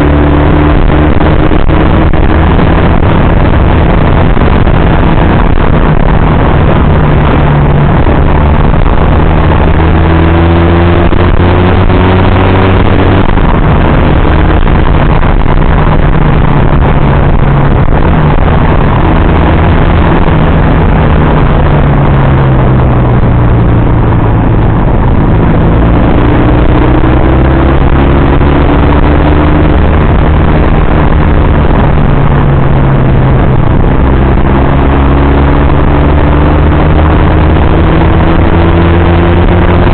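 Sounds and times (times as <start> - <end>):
loud rushing noise: 0.0 - 39.9
motorcycle engine: 0.0 - 39.9.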